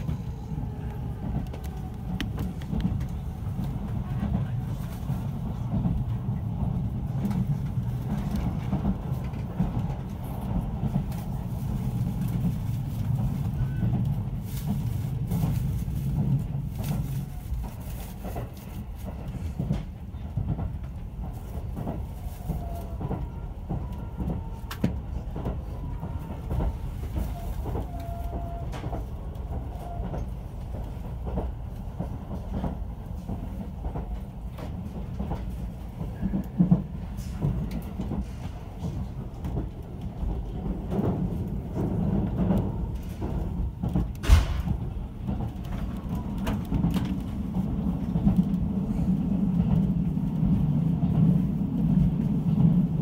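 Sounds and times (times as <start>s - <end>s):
train wheels rumbling on rail: 0.0s - 53.0s
rail-joint clicks: 13.1s - 48.8s.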